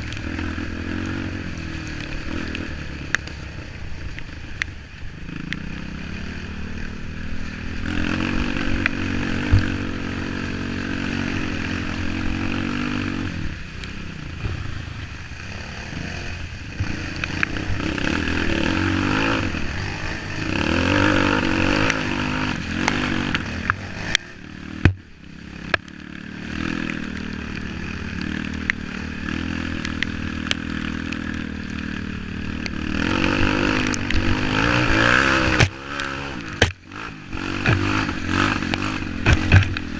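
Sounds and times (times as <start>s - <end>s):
motorcycle engine revving: 0.0s - 39.9s
knocks and clatter: 39.2s - 39.9s.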